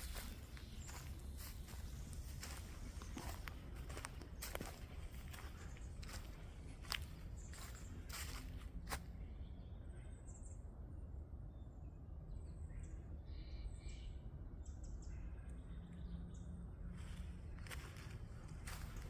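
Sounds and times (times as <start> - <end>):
footsteps: 0.0 - 9.1, 17.0 - 19.0
small birds chirping: 0.0 - 10.9, 11.5 - 19.0
low background rumble: 0.0 - 19.0.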